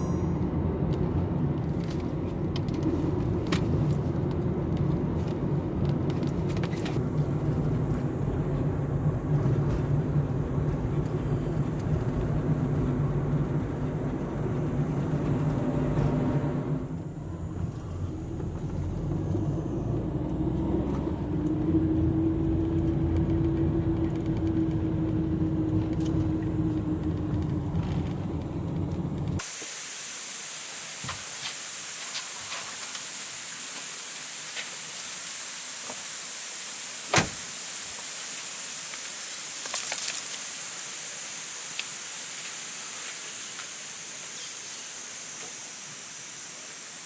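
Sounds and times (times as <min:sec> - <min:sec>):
road and engine rumble: 0:00.0 - 0:47.0
steady high hiss: 0:29.4 - 0:47.0.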